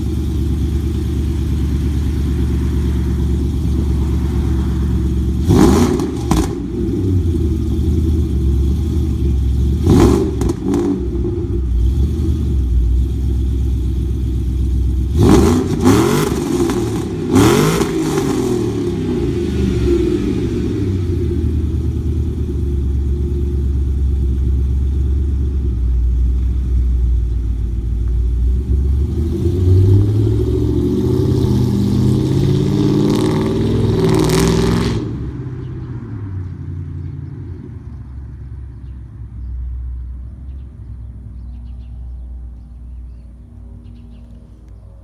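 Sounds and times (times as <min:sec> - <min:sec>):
low exhaust rumble: 0:00.0 - 0:32.7
car engine revving loud: 0:00.8 - 0:12.7, 0:15.1 - 0:22.4, 0:28.6 - 0:35.6.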